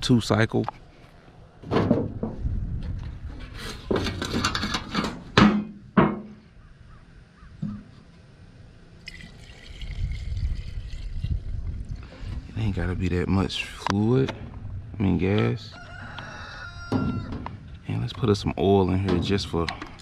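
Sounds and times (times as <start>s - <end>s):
fuel trickling into tank: 9.0s - 12.5s.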